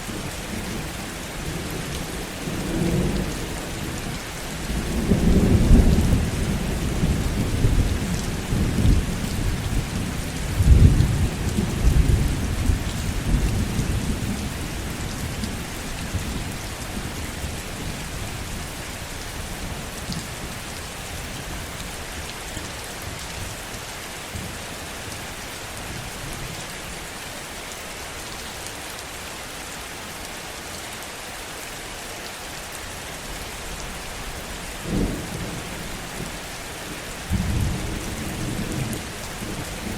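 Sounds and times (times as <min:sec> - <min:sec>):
heavy rain falling: 0:00.0 - 0:39.9
thunder rumbling: 0:37.3 - 0:39.9.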